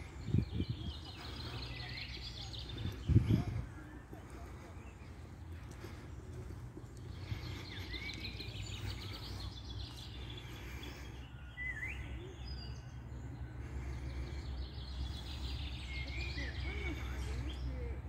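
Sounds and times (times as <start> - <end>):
low outdoor rumble: 0.0 - 18.0
small birds chirping: 0.0 - 18.0.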